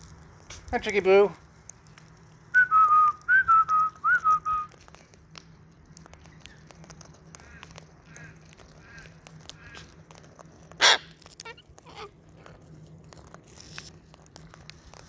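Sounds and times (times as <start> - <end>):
short whistled notes: 2.6 - 4.7
small clicks: 3.7 - 15.0
parrots chirping softly: 5.8 - 15.0.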